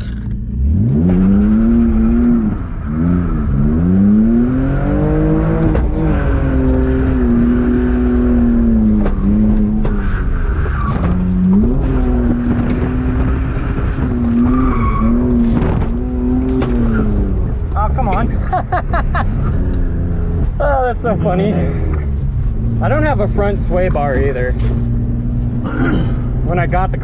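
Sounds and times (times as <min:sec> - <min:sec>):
car engine revving hard: 0:00.4 - 0:17.6.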